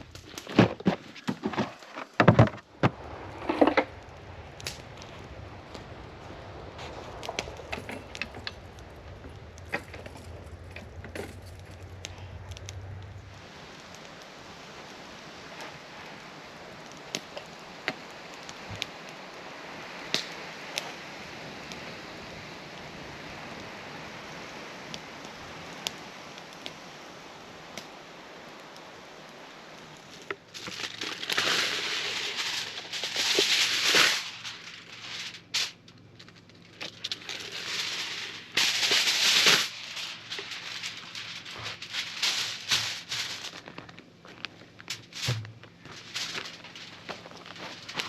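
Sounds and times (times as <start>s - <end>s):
wood fire crackling: 0.0s - 48.0s
surges of rushing noise: 2.0s - 16.8s, 29.4s - 35.9s, 36.7s - 43.6s, 44.9s - 48.0s.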